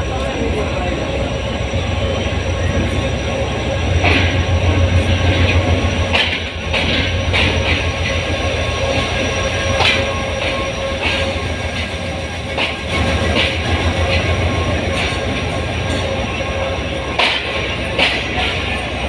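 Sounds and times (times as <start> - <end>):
diesel locomotive engine rumble: 0.0 - 19.0
wheels clacking over rail joints: 1.6 - 19.0
thin steady squeal: 7.2 - 19.0.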